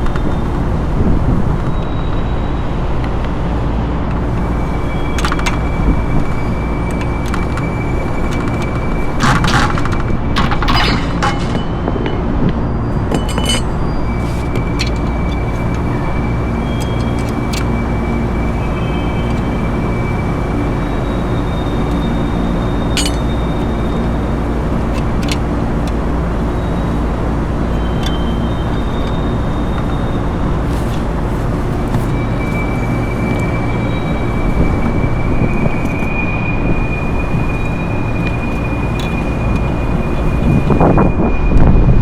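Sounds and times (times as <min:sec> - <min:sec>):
loud machinery hum: 0:00.0 - 0:42.0
metallic clinks of tools: 0:10.4 - 0:12.2, 0:13.0 - 0:15.8, 0:22.9 - 0:23.5.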